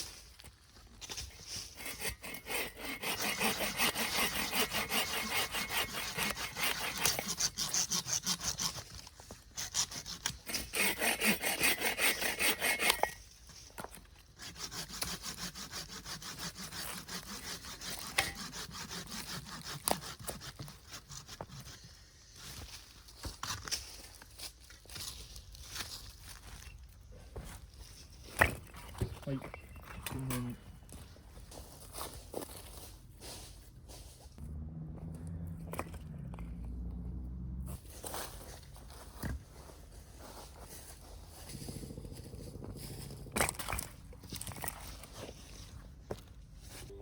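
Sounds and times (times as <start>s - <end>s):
hand saw cutting wood: 1.6s - 13.2s, 14.3s - 21.9s.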